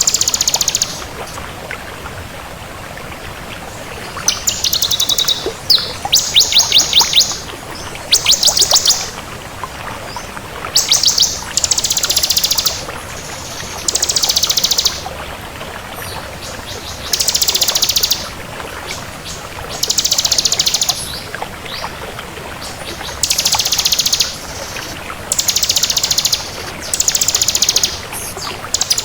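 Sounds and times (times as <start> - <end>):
bird singing trills: 0.0 - 1.1, 4.3 - 9.1, 10.8 - 15.1, 16.7 - 18.3, 19.7 - 21.2, 23.1 - 29.0.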